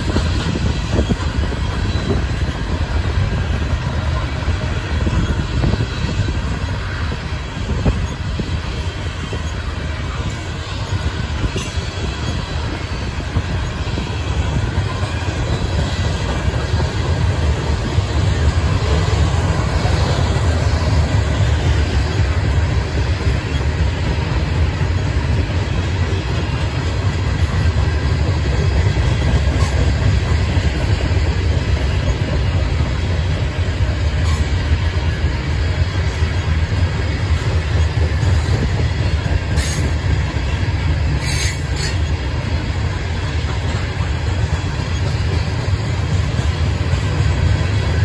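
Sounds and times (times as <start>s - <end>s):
train wheels rumbling on rail: 0.0s - 48.0s
high-pitched wheel squeals: 41.2s - 42.2s.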